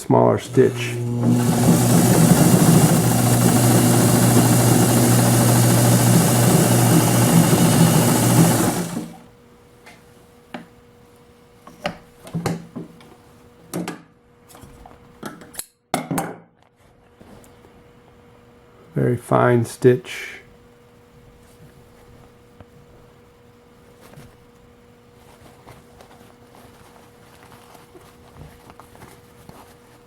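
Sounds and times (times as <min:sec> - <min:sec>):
sewing machine running: 0:00.4 - 0:09.2.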